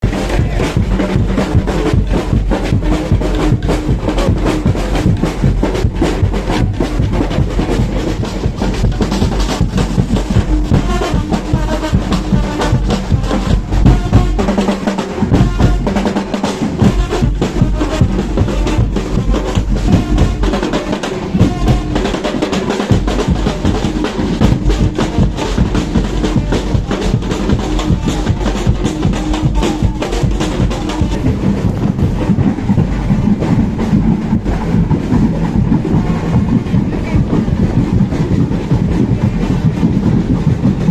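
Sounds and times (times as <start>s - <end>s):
drum-driven street music: 0.0s - 40.9s
low bass line: 29.5s - 40.4s.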